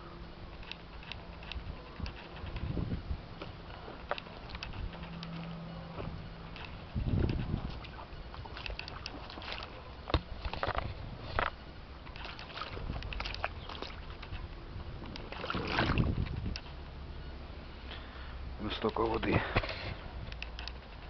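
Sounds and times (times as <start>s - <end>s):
water sloshing and splashing: 0.6s - 16.9s.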